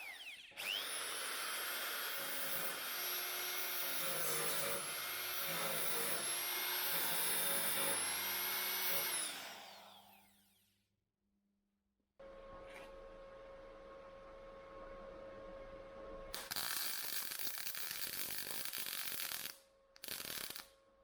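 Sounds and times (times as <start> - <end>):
power tool motor whining: 0.0 - 10.6.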